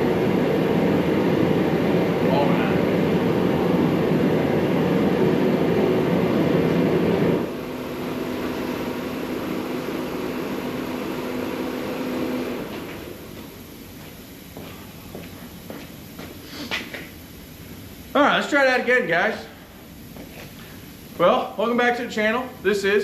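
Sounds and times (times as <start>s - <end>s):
machine rumble: 0.0s - 16.2s.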